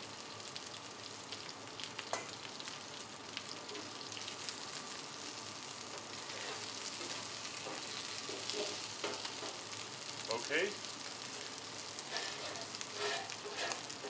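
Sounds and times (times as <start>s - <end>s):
wings sizzling on a griddle: 0.0s - 14.0s
metal spatulas scraping a griddle: 6.2s - 6.7s, 7.7s - 9.2s, 12.0s - 14.0s.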